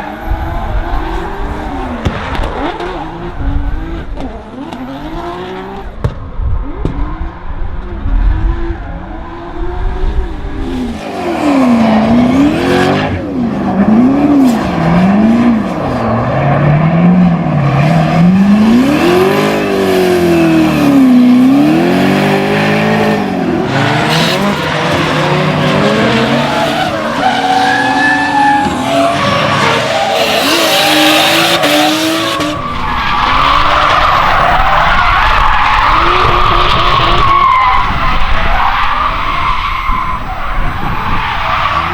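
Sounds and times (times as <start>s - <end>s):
car engine revving: 0.0s - 6.1s, 6.7s - 41.9s
tyres squealing on tarmac: 23.7s - 41.9s.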